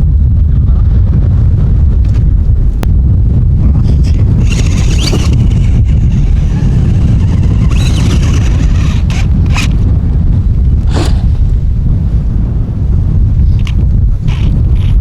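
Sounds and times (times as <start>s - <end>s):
wind buffeting microphone: 0.0s - 15.0s
toy car motor whining: 3.8s - 9.8s, 13.6s - 15.0s
brief scrapes: 10.9s - 11.4s.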